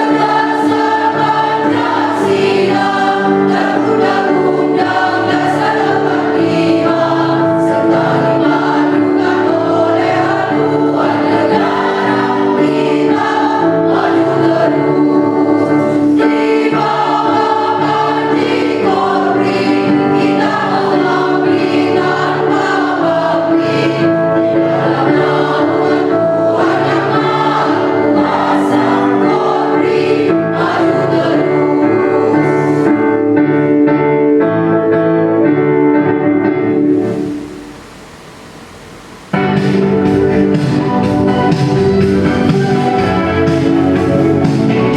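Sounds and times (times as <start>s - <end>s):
choir singing a march: 0.0s - 33.2s.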